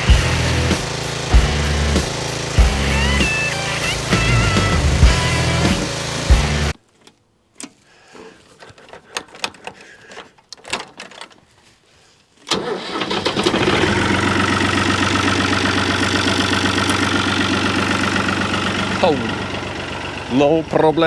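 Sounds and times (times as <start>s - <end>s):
engine starting and idling: 0.0s - 6.8s, 12.5s - 21.0s
faint clicks and knocks: 6.8s - 11.6s.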